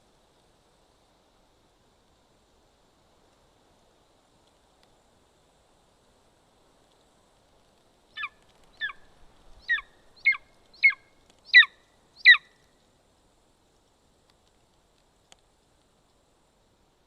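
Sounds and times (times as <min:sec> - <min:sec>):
eagle calling: 0:08.2 - 0:09.0, 0:09.6 - 0:12.6.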